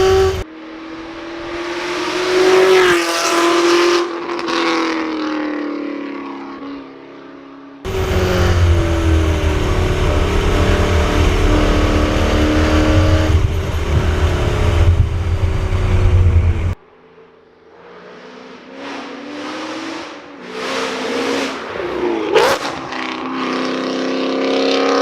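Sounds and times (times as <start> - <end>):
heavy low rumble: 7.9 - 16.8.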